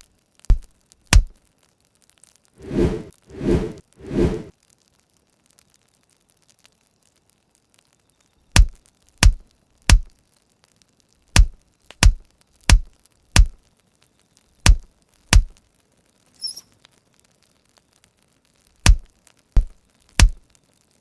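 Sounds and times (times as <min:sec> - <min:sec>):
axe chopping firewood: 0:00.5 - 0:01.3, 0:08.6 - 0:10.1, 0:11.4 - 0:13.6, 0:14.7 - 0:15.5, 0:18.8 - 0:20.4.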